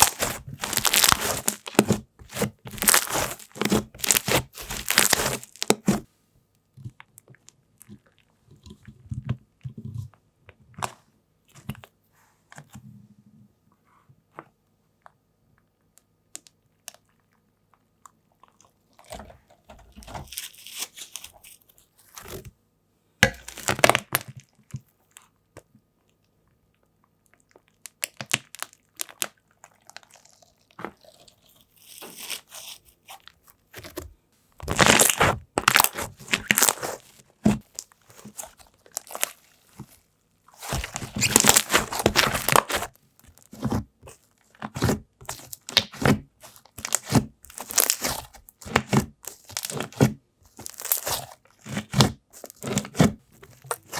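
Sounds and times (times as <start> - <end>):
slime crackling and squishing: 0.0 - 6.1, 18.5 - 22.5, 23.2 - 25.3, 27.4 - 53.9.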